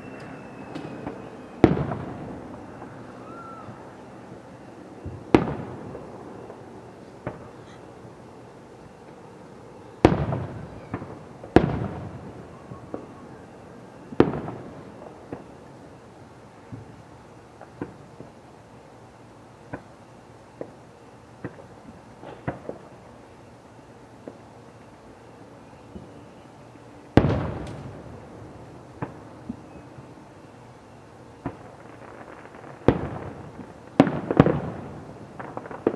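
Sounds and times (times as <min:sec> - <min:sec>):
firework booms: 0:00.0 - 0:03.8, 0:05.0 - 0:06.6, 0:10.0 - 0:13.2, 0:14.1 - 0:15.6, 0:27.2 - 0:28.3, 0:31.4 - 0:35.9
small firework pops: 0:00.1 - 0:02.1, 0:07.1 - 0:07.7, 0:17.6 - 0:18.4, 0:19.7 - 0:19.9, 0:21.4 - 0:22.9, 0:27.2 - 0:28.0, 0:31.4 - 0:34.8, 0:35.4 - 0:35.9.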